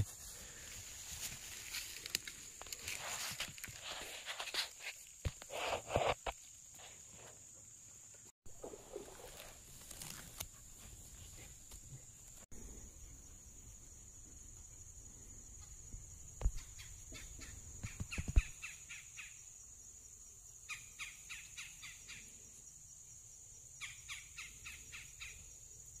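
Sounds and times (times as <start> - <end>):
songbird calling: 16.4 - 19.5, 20.7 - 22.4, 23.8 - 25.5.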